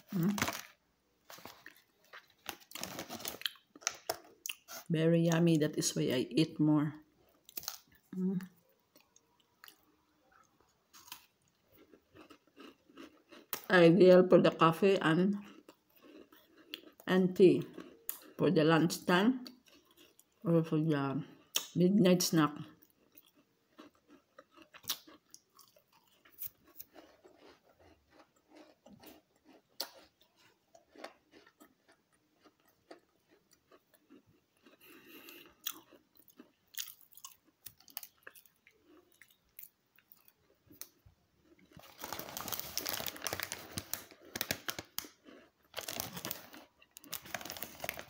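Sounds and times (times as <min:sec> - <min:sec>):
cookie crunching while chewing: 0:00.0 - 0:04.9, 0:07.2 - 0:13.9, 0:15.3 - 0:18.4, 0:19.4 - 0:20.4, 0:22.6 - 0:48.0
crinkling: 0:00.0 - 0:04.9, 0:24.8 - 0:48.0.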